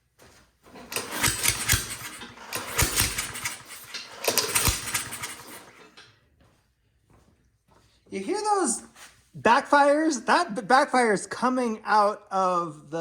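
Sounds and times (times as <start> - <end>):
lawnmower engine pull-started: 0.6 - 6.2
engine popping backfires: 1.0 - 5.6.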